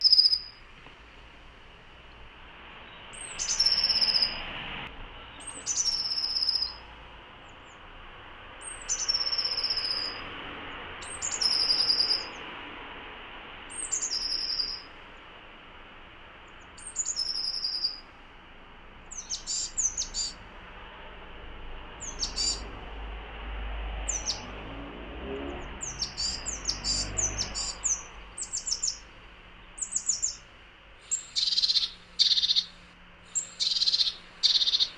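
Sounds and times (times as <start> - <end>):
short quick bird chirps: 31.1 - 34.9.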